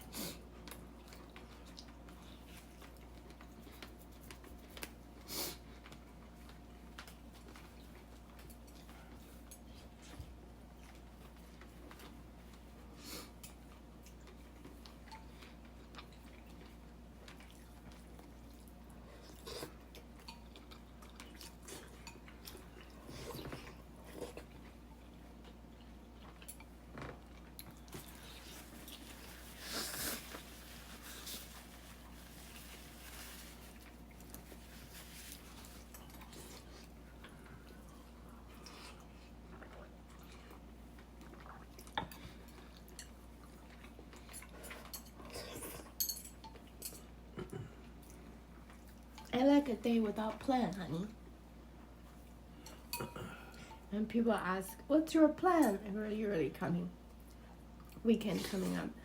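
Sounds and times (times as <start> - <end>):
people chewing: 0.1 - 46.0.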